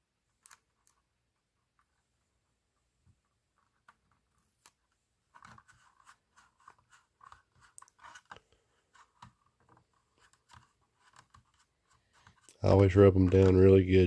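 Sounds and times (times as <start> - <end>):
small plastic clicks: 0.3 - 1.1
crinkly scratching of sticker sheet: 3.6 - 14.0.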